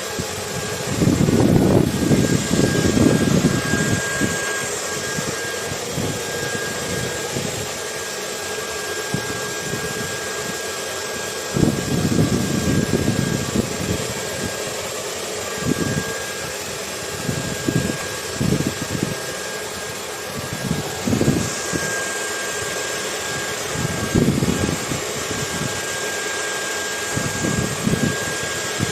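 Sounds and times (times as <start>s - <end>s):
hair dryer whooshing: 0.0s - 28.9s
wind gusting: 0.4s - 7.9s, 11.5s - 14.6s, 20.2s - 25.8s.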